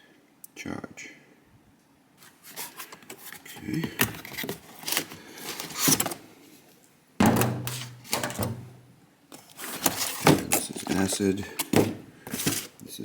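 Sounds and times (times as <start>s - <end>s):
loud thunk: 7.2s - 8.7s.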